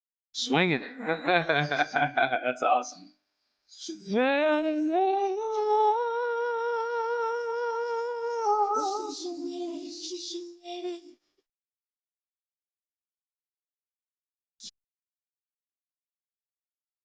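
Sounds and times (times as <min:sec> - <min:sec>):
man singing unaccompanied: 0:03.9 - 0:09.6.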